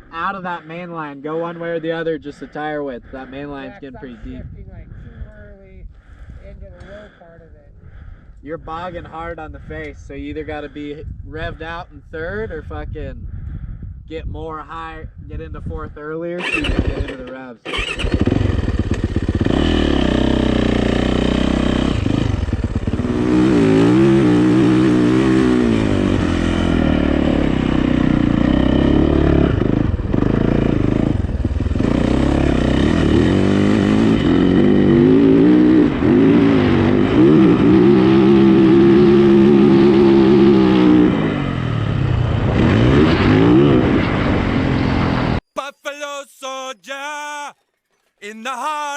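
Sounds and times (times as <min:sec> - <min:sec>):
dirt bike engine revving hard: 0:16.4 - 0:45.2.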